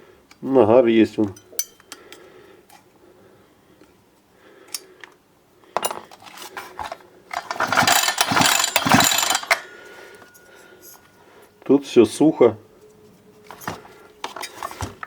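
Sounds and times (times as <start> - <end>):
mechanical ratcheting clatter: 7.3 - 9.7.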